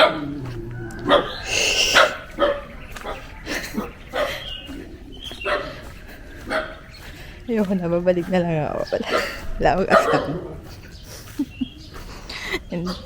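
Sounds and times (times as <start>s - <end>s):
dog barking: 0.0s - 7.0s, 8.8s - 10.8s.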